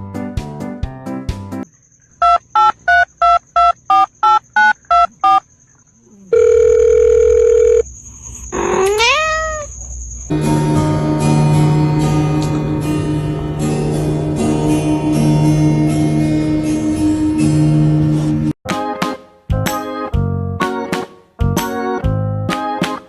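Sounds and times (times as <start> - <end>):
steady phone tone: 6.3 - 7.8
plucked music: 10.3 - 19.2.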